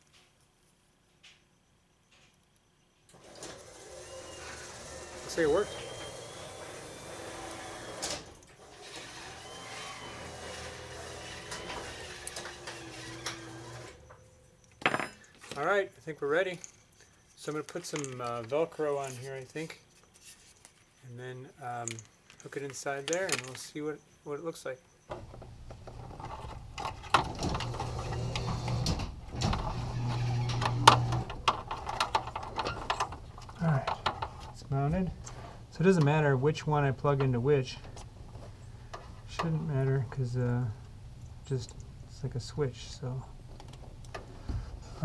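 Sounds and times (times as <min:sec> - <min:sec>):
garage door opener humming: 0:03.1 - 0:14.4, 0:25.1 - 0:34.4.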